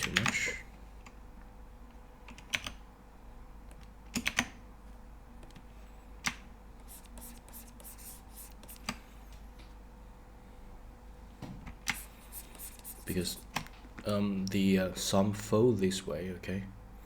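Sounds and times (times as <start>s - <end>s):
faint electrical hum: 0.0s - 17.0s
computer keys clicking: 2.3s - 2.8s, 3.6s - 4.6s.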